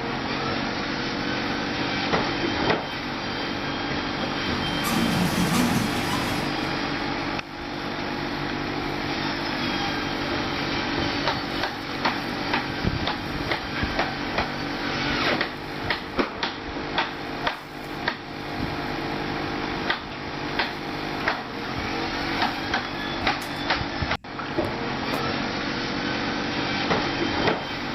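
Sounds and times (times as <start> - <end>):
mechanical hum: 0.0 - 27.9.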